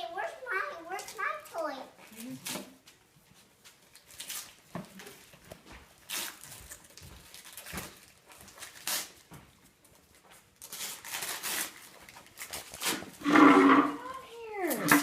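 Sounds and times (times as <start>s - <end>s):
wrapping paper rustling and tearing: 3.6s - 9.3s, 10.0s - 15.0s.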